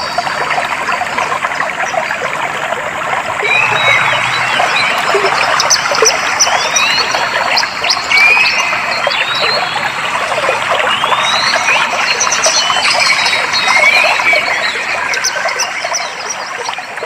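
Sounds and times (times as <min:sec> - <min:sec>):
stream water flowing: 0:00.0 - 0:17.0
small birds whistling: 0:03.4 - 0:09.8.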